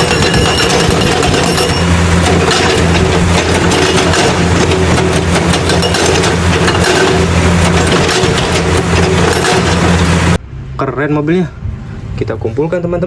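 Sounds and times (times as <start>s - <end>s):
stone crusher machine rattling: 0.0s - 10.3s.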